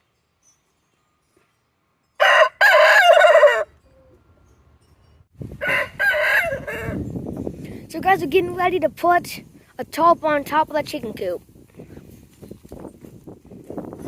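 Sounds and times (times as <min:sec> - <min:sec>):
outdoor background noise: 0:00.0 - 0:14.0
rooster crowing: 0:02.2 - 0:03.8, 0:05.6 - 0:07.2.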